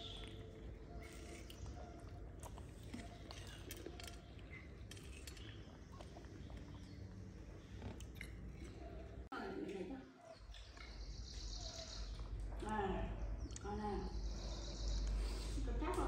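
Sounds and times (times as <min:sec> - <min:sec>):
monkey chewing watermelon: 0:00.0 - 0:09.3.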